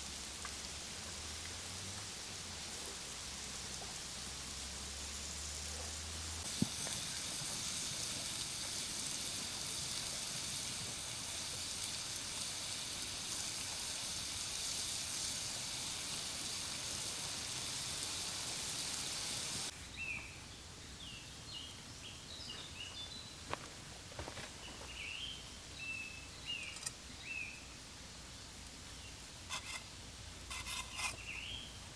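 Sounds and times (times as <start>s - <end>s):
steaks sizzling over fire: 0.0s - 19.7s, 28.6s - 31.7s
birds chirping: 24.5s - 27.6s.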